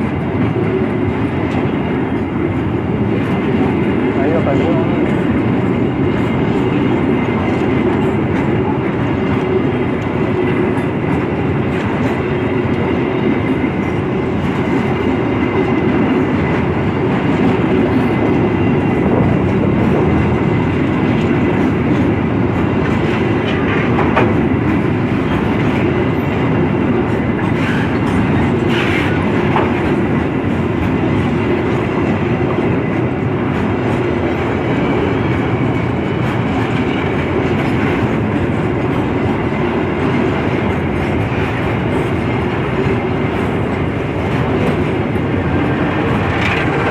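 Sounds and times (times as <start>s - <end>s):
train rumbling: 0.0s - 46.9s
wheels clacking over rail joints: 0.0s - 46.9s.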